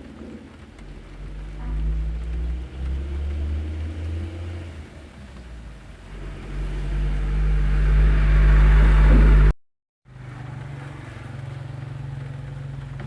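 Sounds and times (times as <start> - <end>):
truck engines droning: 0.0 - 9.5, 10.1 - 13.0.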